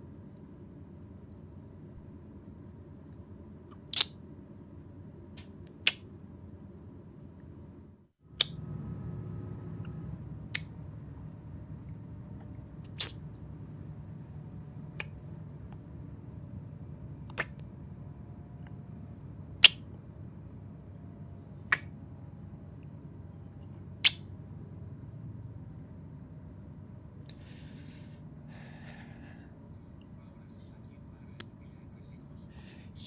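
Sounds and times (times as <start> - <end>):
train interior rumble: 4.5 - 33.0
sharp click: 19.6 - 19.9, 24.0 - 24.2.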